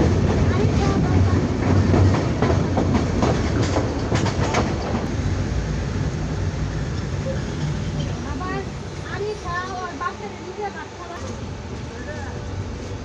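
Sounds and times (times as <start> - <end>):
train wheels clicking over rail joints: 0.0 - 5.1
train rumble: 0.0 - 13.0.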